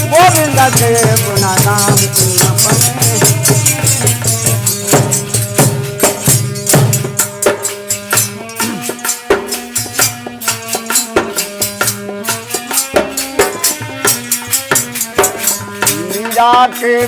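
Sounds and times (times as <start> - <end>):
held melody notes: 0.0 - 17.0
shaker-like percussion: 0.0 - 17.0.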